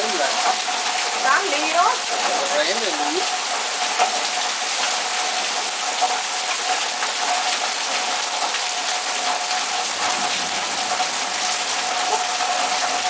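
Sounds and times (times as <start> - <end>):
heavy rain pouring: 0.0 - 13.0
sharp raindrop hits: 0.0 - 13.0.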